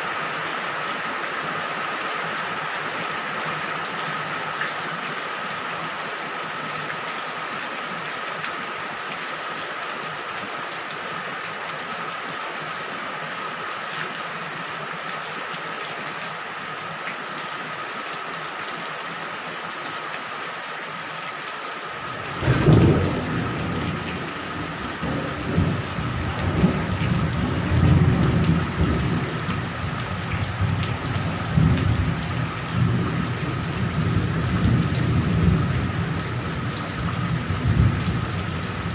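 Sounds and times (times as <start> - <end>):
rain falling: 0.0 - 38.9
thunder rumbling: 22.0 - 38.9.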